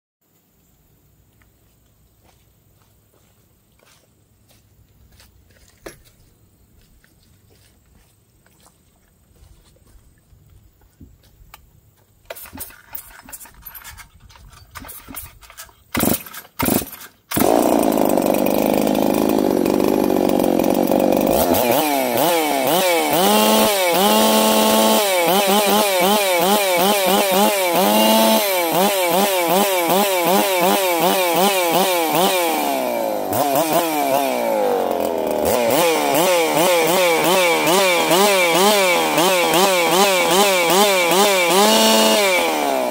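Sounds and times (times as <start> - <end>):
starter cord pulls: 12.3 - 21.8
chainsaw engine revving: 14.8 - 42.9.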